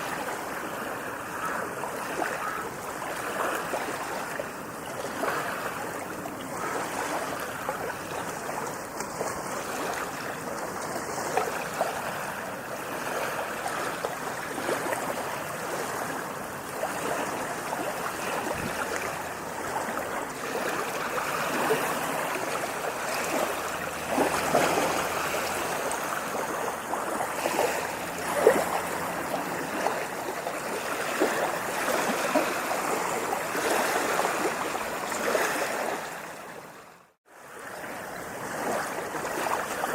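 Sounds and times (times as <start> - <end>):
water splashing and trickling: 0.0 - 39.9.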